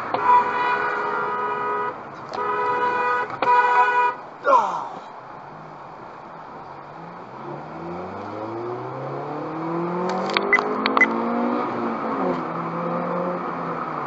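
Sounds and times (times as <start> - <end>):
car engine accelerating: 6.8 - 14.0
sharp clicks: 10.0 - 11.2.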